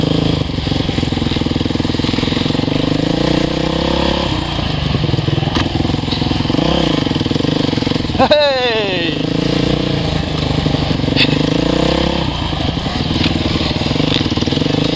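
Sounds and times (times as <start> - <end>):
dirt bike engine running: 0.0 - 14.9.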